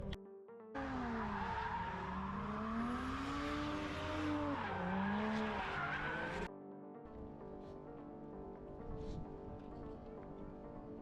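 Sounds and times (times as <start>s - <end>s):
car engine revving: 0.8s - 6.5s
hissing tyre squeal: 1.0s - 6.5s.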